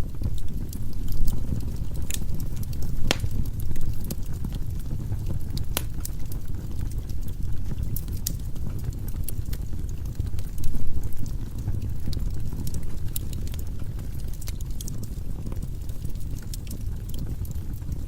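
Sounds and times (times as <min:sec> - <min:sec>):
fire burning in fireplace: 0:00.0 - 0:18.0
wood crackling and popping: 0:00.0 - 0:18.0.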